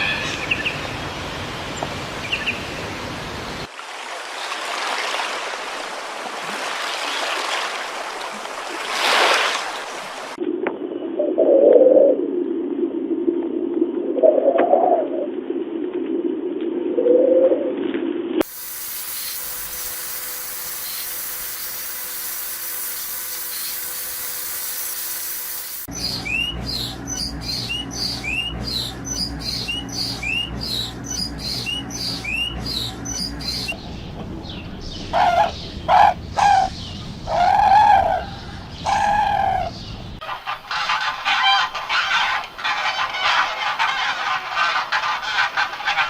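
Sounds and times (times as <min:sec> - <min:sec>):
dove cooing: 0:11.2 - 0:12.2
small bird chirping: 0:25.9 - 0:35.7
loud bird calls: 0:25.9 - 0:46.0.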